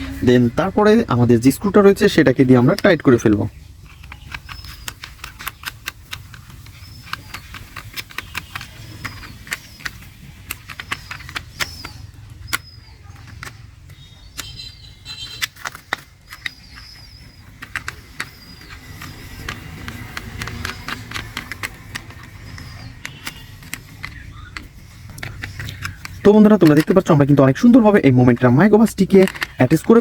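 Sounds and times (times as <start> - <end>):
birds chirping: 0.0 - 30.0
plastic toy parts clicking: 0.8 - 30.0.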